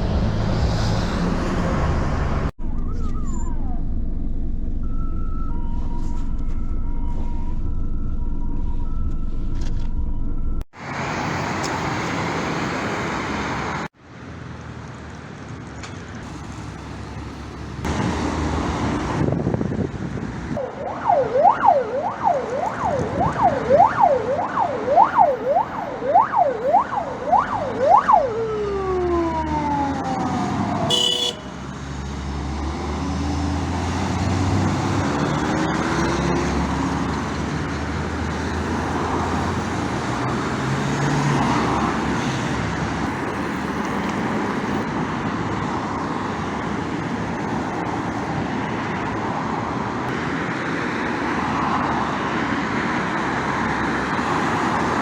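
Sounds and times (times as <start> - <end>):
engine and traffic noise: 0.0 - 55.0
fire engine siren wailing: 2.6 - 12.4, 20.5 - 31.8, 51.2 - 55.0.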